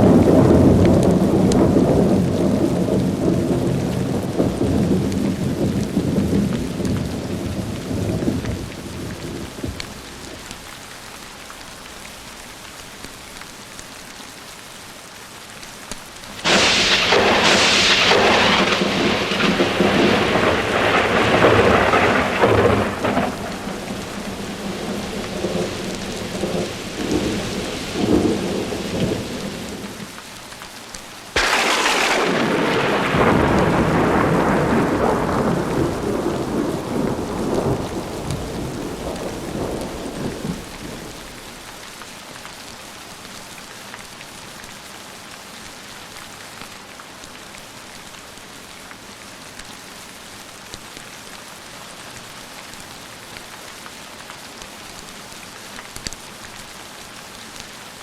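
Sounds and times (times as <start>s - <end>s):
thunder rumbling: 0.0s - 10.5s, 16.4s - 30.1s, 31.4s - 41.5s
heavy rain falling: 0.0s - 58.0s.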